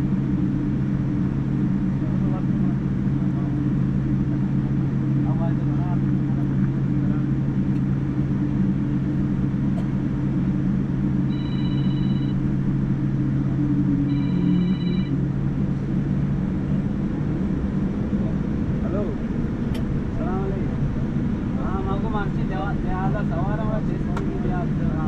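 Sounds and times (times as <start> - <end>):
airliner cabin hum: 0.0 - 25.0
high electronic tones: 11.3 - 12.4, 14.0 - 15.2.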